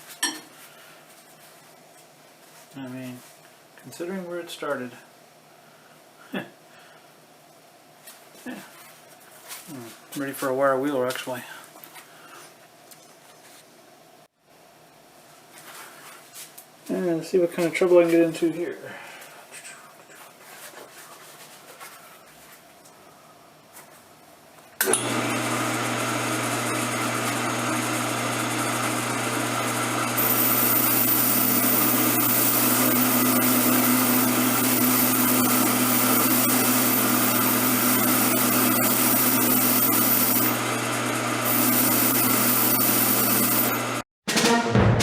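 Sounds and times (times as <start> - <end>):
wire wheel motor hum: 24.8 - 44.0.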